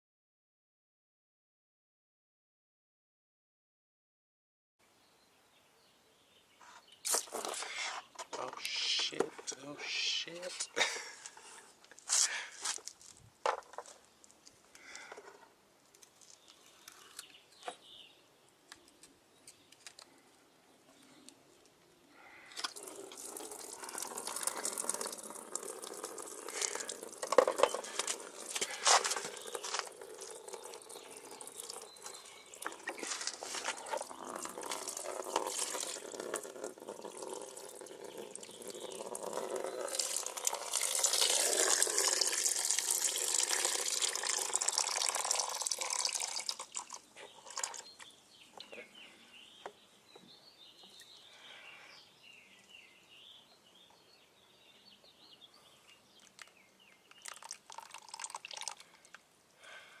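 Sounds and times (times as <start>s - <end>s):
liquid dribbling and dripping: 22.6s - 48.8s, 56.2s - 59.2s.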